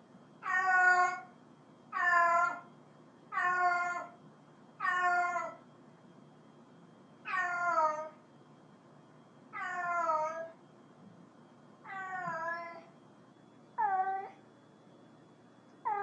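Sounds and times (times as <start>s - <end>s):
cat meowing: 0.4s - 1.3s, 3.4s - 4.1s, 4.8s - 5.6s, 7.3s - 8.1s, 9.6s - 10.5s, 11.8s - 12.9s, 13.8s - 14.4s.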